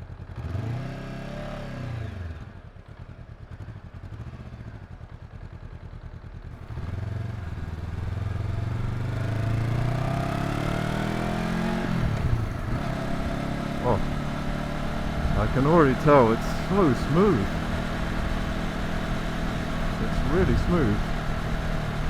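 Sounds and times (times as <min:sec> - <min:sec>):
motorcycle engine revving: 0:06.6 - 0:22.0.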